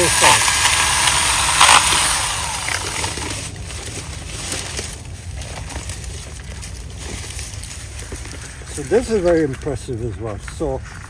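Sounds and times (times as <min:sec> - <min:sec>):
mini chainsaw cutting wood: 0:00.0 - 0:04.9
steady low rumble: 0:00.5 - 0:11.0.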